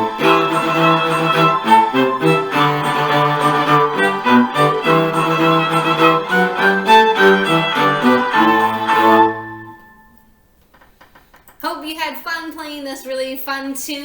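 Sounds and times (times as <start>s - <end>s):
cello playing: 0.0s - 10.2s
recorded accompaniment: 0.0s - 11.6s.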